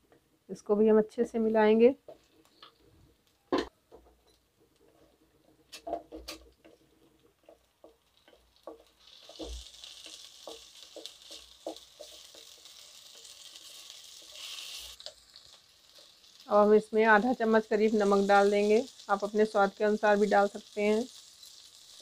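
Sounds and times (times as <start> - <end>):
spatula tapping pan: 5.6 - 13.4
food sizzling in oil: 5.8 - 22.0.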